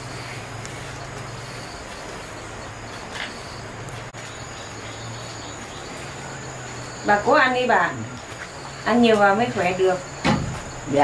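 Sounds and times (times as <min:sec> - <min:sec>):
background hum and hiss: 0:00.0 - 0:11.0
crickets trilling: 0:00.0 - 0:11.0.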